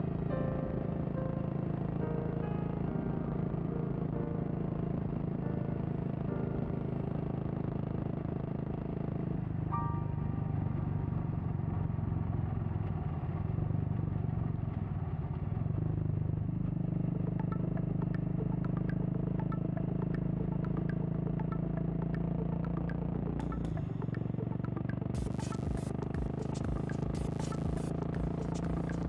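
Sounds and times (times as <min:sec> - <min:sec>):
motorcycle engine running: 0:11.1 - 0:29.0
light ticking: 0:17.4 - 0:29.0.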